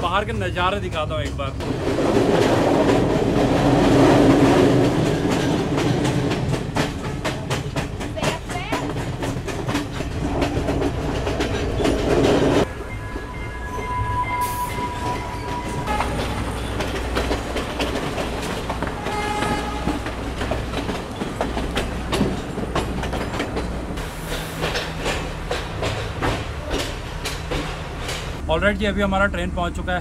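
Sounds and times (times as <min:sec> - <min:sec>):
train wheels clattering: 0:00.0 - 0:13.3, 0:14.4 - 0:28.4
train horn: 0:12.7 - 0:16.8, 0:18.9 - 0:20.2.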